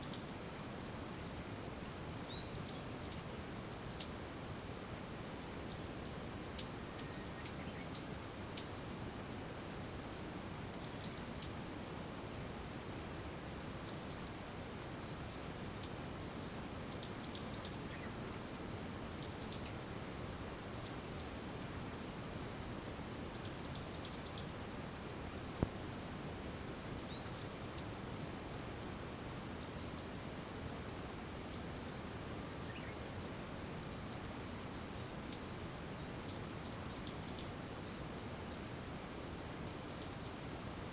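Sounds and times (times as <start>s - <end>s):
small bird chirping: 0.0s - 0.3s, 2.3s - 3.2s, 5.7s - 8.0s, 10.7s - 11.5s, 13.9s - 14.4s, 16.9s - 18.4s, 19.1s - 19.8s, 20.8s - 21.3s, 23.4s - 25.2s, 27.1s - 27.9s, 29.6s - 30.1s, 31.5s - 33.0s, 36.2s - 38.0s, 39.6s - 40.4s
steady rain hiss: 0.0s - 40.9s.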